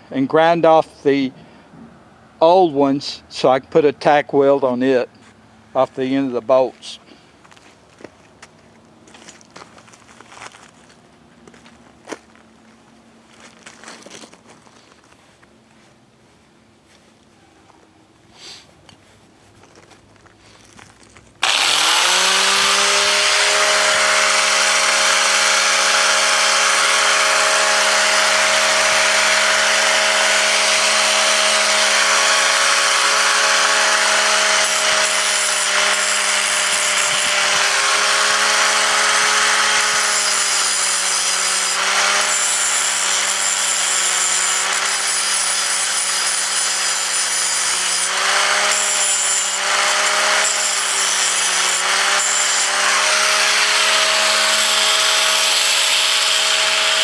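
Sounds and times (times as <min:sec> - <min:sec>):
angle grinder grinding metal: 0:21.4 - 0:57.0.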